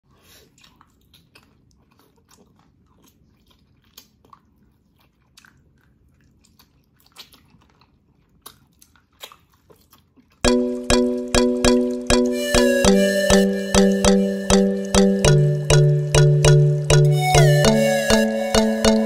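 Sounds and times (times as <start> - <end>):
person chewing meat: 0.2 - 10.4.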